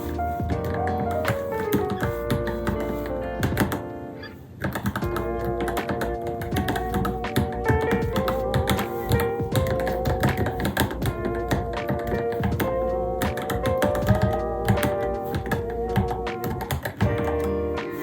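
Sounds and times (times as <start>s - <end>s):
mechanical keyboard typing: 0.0s - 3.9s, 4.6s - 17.7s
background music: 0.0s - 18.0s.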